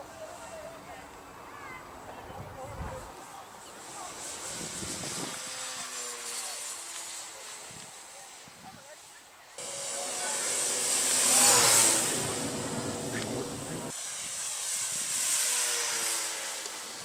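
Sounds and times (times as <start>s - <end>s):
model aeroplane engine: 2.9s - 17.0s.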